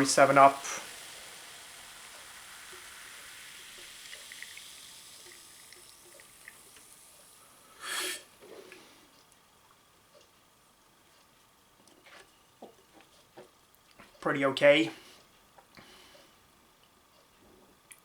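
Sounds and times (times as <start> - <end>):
soda fizzing in a glass: 0.0 - 8.4.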